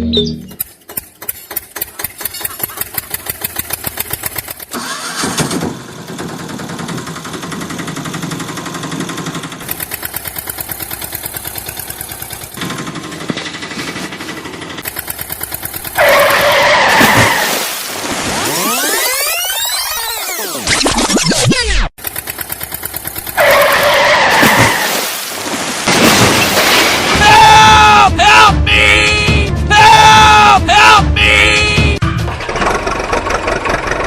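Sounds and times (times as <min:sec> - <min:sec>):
engine chugging: 0:00.5 - 0:16.9, 0:22.0 - 0:24.4, 0:32.0 - 0:34.0.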